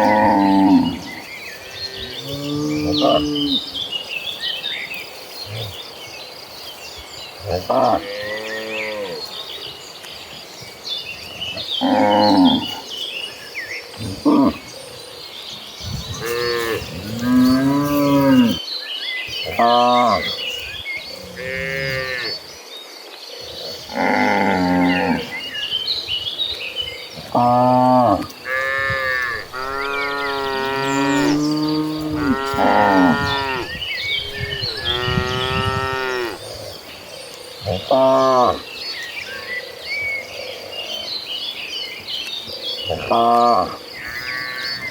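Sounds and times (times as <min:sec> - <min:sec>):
cattle mooing: 0:27.3 - 0:36.4.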